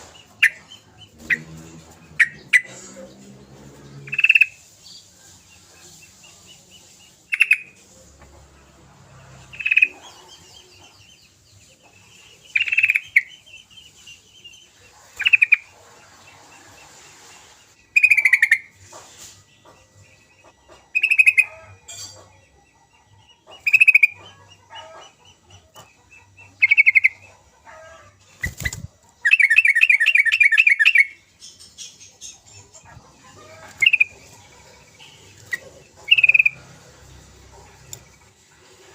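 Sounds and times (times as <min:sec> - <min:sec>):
bird chattering: 0:00.0 - 0:02.8, 0:04.1 - 0:04.6, 0:12.4 - 0:13.5, 0:18.0 - 0:18.7, 0:20.4 - 0:22.3, 0:27.8 - 0:36.8
bird calls: 0:09.5 - 0:19.0, 0:19.6 - 0:38.4.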